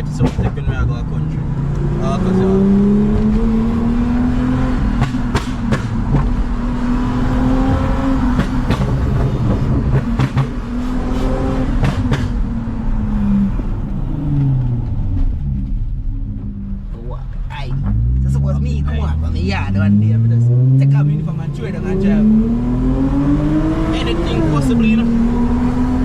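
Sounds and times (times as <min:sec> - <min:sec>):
car exhaust droning: 0:00.0 - 0:26.0
sharp knocks and rattles: 0:04.9 - 0:06.4, 0:07.6 - 0:12.5.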